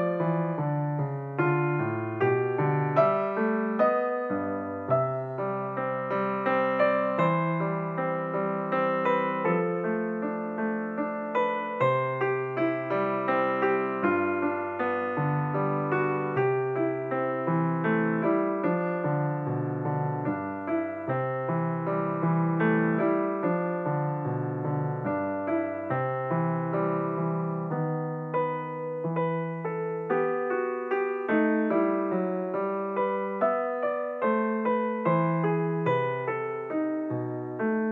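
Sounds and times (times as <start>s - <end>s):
solo piano-like keyboard: 0.0s - 37.9s.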